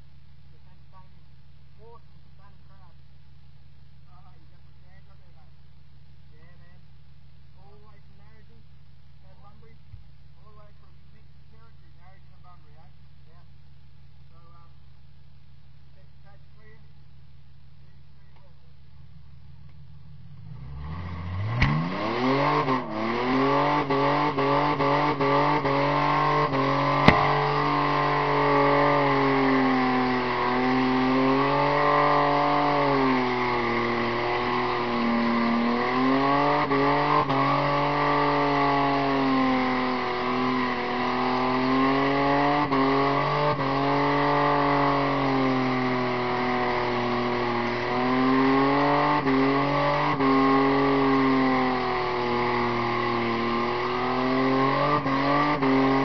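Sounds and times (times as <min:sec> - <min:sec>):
car engine revving high: 0:19.0 - 0:56.0
short sharp crack: 0:27.0 - 0:27.4.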